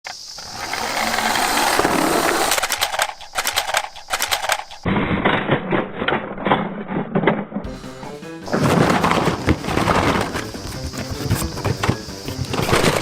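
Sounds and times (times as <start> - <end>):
toy trucks rolling and clattering: 0.1 - 4.9, 8.5 - 13.0.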